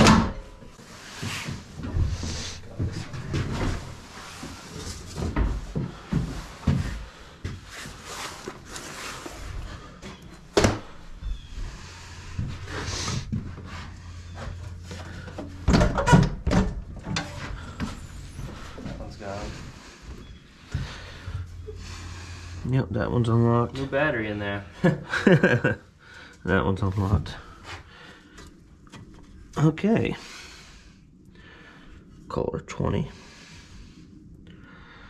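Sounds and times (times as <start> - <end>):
mowers clunking and rattling: 14.1 - 19.5.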